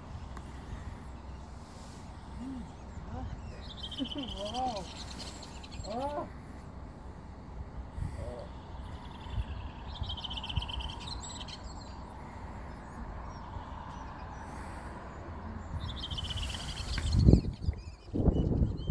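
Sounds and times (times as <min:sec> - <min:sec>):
small bird chirping trills: 0:00.0 - 0:06.6, 0:07.3 - 0:18.9
wind rumble on microphone: 0:07.6 - 0:18.9.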